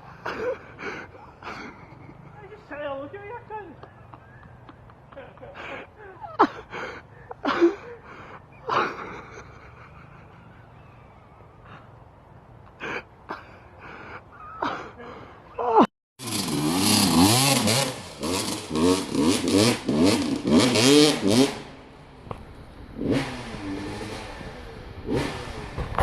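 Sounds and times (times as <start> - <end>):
dirt bike engine revving: 16.2 - 26.0.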